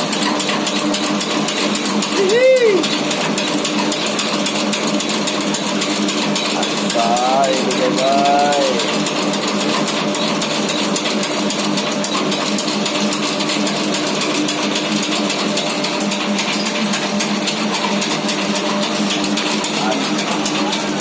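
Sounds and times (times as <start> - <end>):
motor hum: 0.0 - 21.0
sieve rattling: 13.3 - 21.0.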